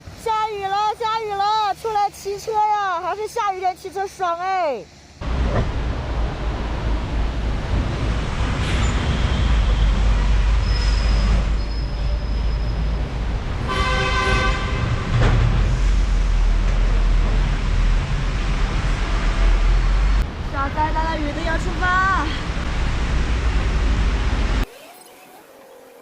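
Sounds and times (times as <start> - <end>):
wind and road noise: 0.0 - 24.7
vehicle horn: 13.6 - 15.2.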